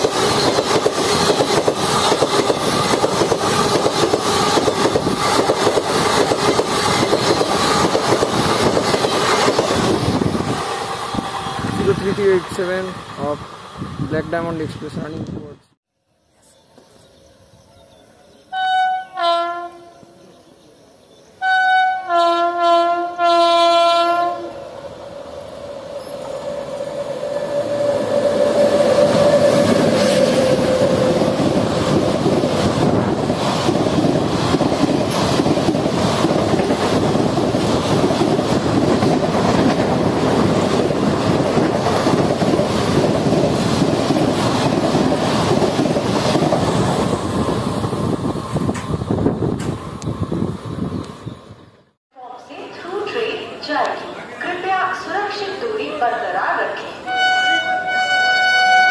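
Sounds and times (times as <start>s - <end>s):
rush of passing train: 0.0s - 15.6s, 16.7s - 58.9s
locomotive horn blasts: 18.5s - 20.0s, 21.4s - 24.6s, 57.1s - 58.9s.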